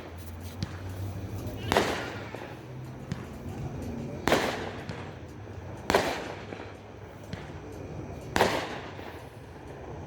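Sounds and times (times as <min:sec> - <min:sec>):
faint fireworks pops: 0:00.0 - 0:09.3
fireworks bangs: 0:01.5 - 0:03.3, 0:04.2 - 0:05.2, 0:05.8 - 0:07.5, 0:08.4 - 0:09.0.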